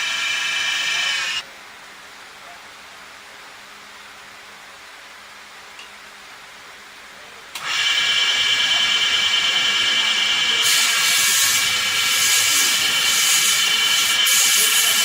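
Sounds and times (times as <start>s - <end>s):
lathe whining: 0.0s - 1.4s, 7.6s - 15.0s
loud hiss: 0.0s - 1.4s, 10.5s - 15.0s.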